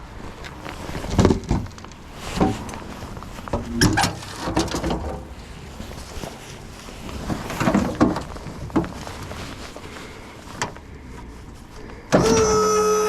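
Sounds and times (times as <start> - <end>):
hydraulic pump whining: 12.1 - 13.0.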